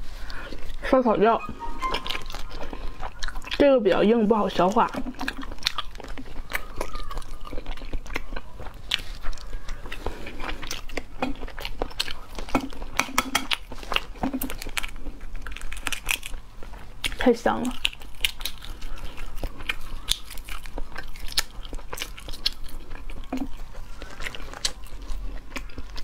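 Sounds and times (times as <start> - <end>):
close chewing: 0.0 - 1.0, 1.6 - 26.0
eggshell cracking and peeling: 10.8 - 26.0.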